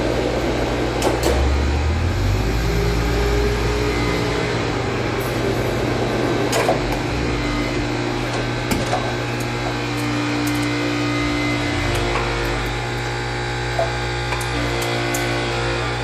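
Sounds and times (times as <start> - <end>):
motor hum: 0.0 - 16.0.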